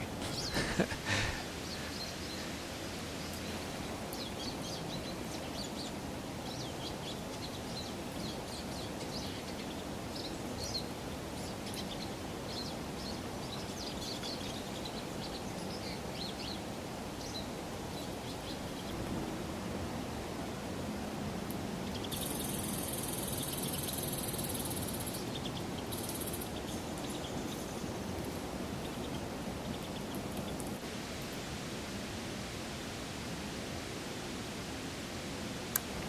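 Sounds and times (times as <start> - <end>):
birds chirping: 0.0 - 2.5
steady background hiss: 0.0 - 36.0.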